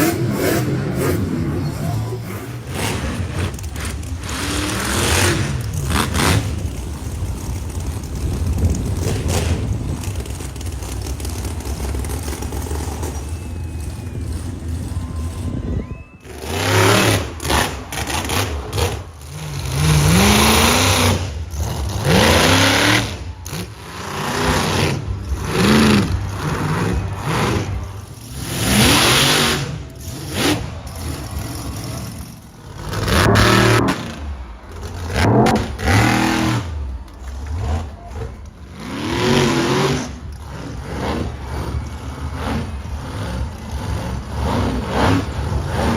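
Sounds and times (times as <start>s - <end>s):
truck engine revving: 0.0s - 45.9s.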